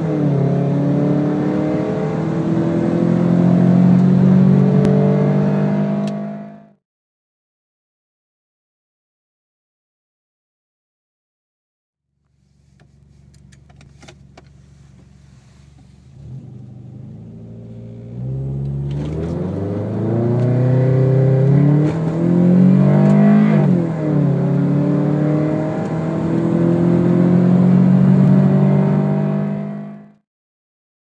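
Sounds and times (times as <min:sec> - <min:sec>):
car engine accelerating: 0:00.0 - 0:06.8, 0:12.4 - 0:30.2.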